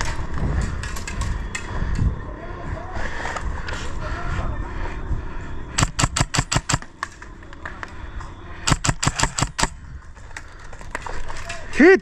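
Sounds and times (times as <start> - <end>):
airsoft gun shots: 5.8 - 6.9, 8.7 - 9.7.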